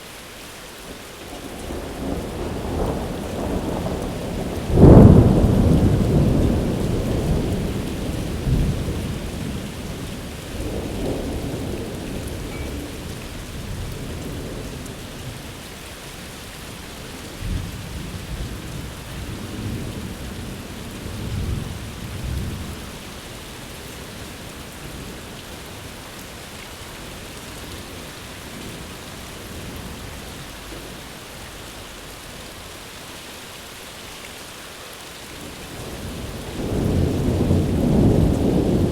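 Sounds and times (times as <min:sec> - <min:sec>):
steady rain: 0:00.0 - 0:38.9
rolling thunder: 0:01.6 - 0:15.7, 0:35.5 - 0:38.9.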